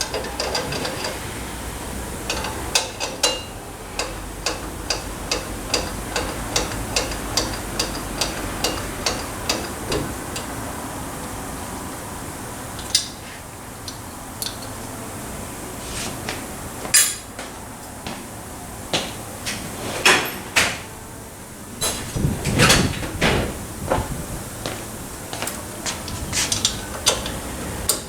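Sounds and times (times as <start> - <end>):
metal tools clinking and knocking: 17.0 - 17.3.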